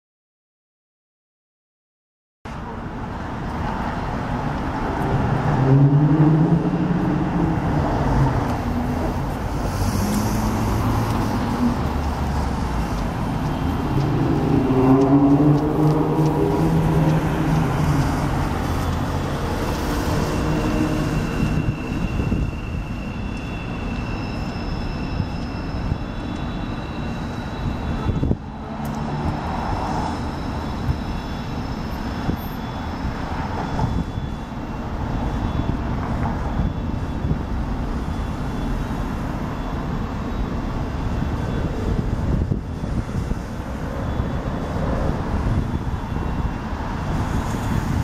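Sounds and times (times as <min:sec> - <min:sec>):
train rumbling: 0:02.6 - 0:48.0
high squeal of steel wheels: 0:05.6 - 0:48.0.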